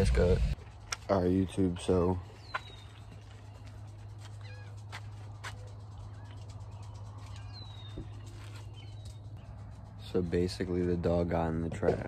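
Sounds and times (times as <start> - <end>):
steady low hum: 0.0 - 12.0
birds whistling and chirping: 2.2 - 9.8.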